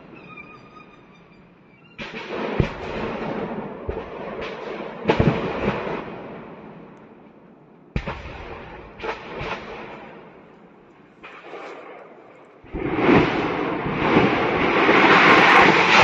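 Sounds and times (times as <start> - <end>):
sharp explosion bangs: 2.0 - 6.8, 8.0 - 10.4, 11.2 - 16.0
crackling explosions: 2.0 - 16.0.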